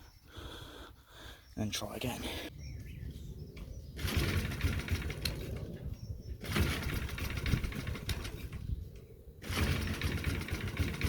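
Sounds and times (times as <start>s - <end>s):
lawnmower engine starting and faltering: 4.0s - 8.8s, 9.4s - 11.0s.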